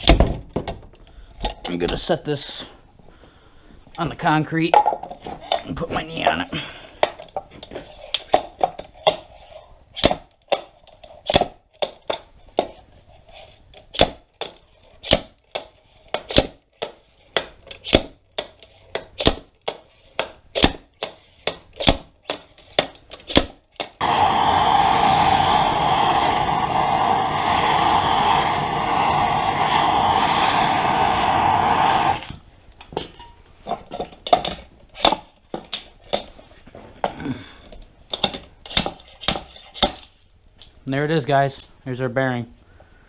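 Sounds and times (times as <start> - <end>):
loud steady rushing noise: 24.0 - 32.2.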